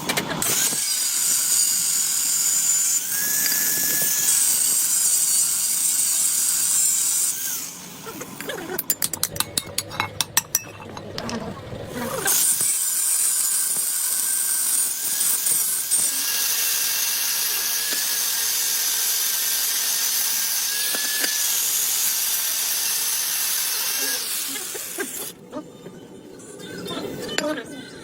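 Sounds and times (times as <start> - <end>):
power tool running under load: 0.0 - 8.9, 11.9 - 25.4.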